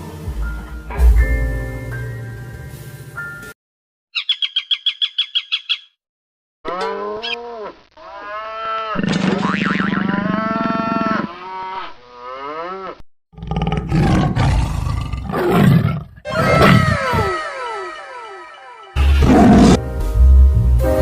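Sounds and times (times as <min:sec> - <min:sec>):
animal calls rising and falling: 0:06.7 - 0:13.0, 0:16.2 - 0:19.6
animal roar with deep rumble: 0:12.4 - 0:17.3, 0:19.0 - 0:19.8.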